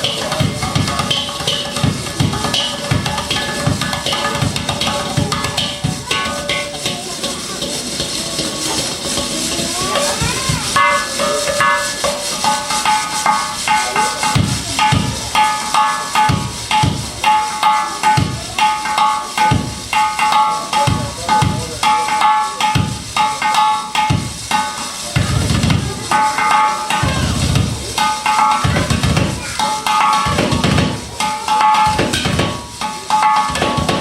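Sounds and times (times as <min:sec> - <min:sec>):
short pitched percussion strokes: 0:00.0 - 0:34.0
deep drum thumps: 0:00.3 - 0:07.0, 0:25.2 - 0:26.1, 0:27.0 - 0:29.4, 0:30.2 - 0:31.2.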